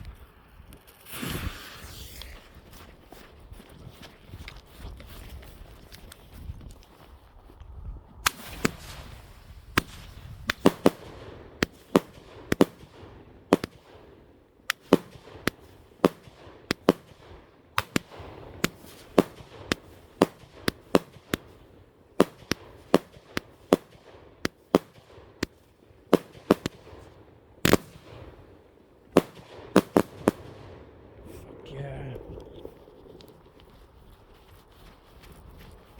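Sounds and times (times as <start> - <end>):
firework bangs: 1.0 - 2.8, 8.2 - 31.4.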